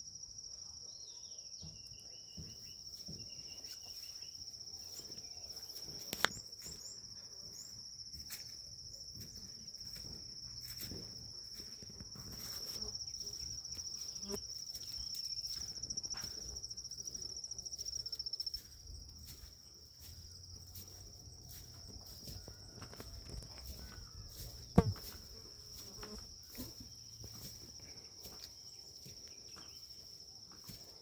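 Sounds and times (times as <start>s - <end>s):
insect trilling: 12.4s - 15.6s.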